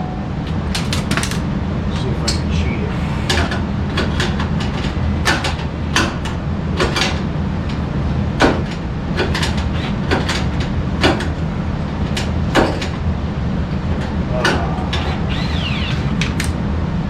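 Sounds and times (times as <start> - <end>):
steady low hum: 0.0 - 9.2, 10.6 - 17.0.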